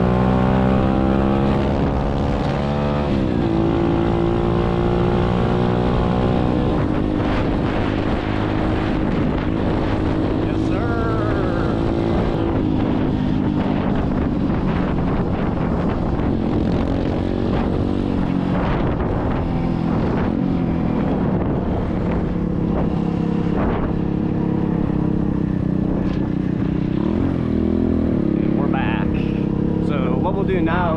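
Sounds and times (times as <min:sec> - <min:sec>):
dirt bike engine running: 0:00.0 - 0:30.9
wind on microphone: 0:00.0 - 0:30.9.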